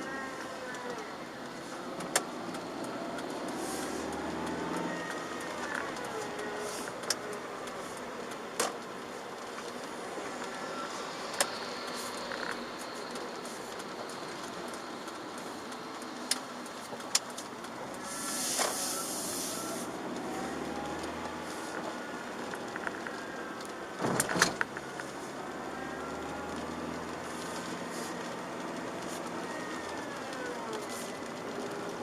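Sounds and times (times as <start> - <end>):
tyre and road noise: 0.0 - 32.0
burst of hiss: 18.0 - 19.8.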